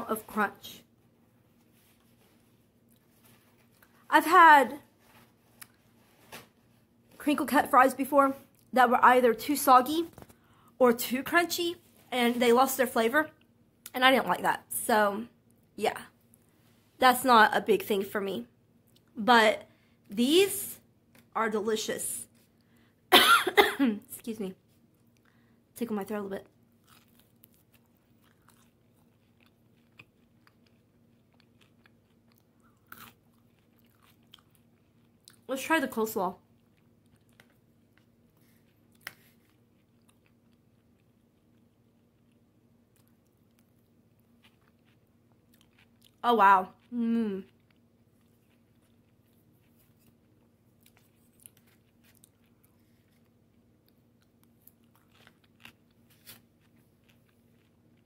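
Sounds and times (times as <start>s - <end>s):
chewing crunchy french fry: 26.1s - 35.6s, 36.3s - 58.0s.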